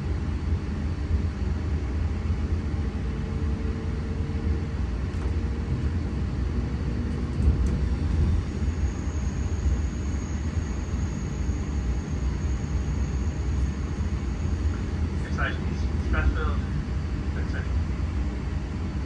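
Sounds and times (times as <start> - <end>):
electric train rumbling: 4.2 - 19.0
faint high steady tone: 8.6 - 14.8.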